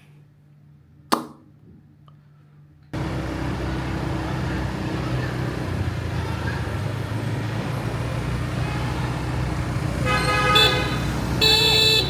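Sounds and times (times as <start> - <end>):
road and traffic noise: 2.9 - 12.0
motorbike engine running: 3.0 - 12.0
vehicle horn: 8.5 - 12.0.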